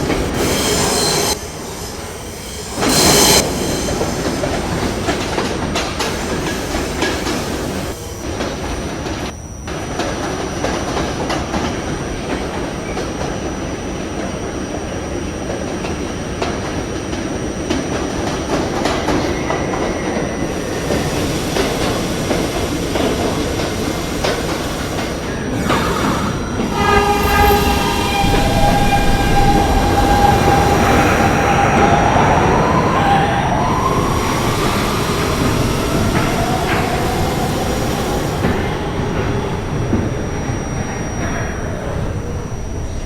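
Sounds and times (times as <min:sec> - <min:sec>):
pitched squeal: 0:00.0 - 0:08.1, 0:23.8 - 0:43.0
subway train rumble and clatter: 0:00.0 - 0:43.0.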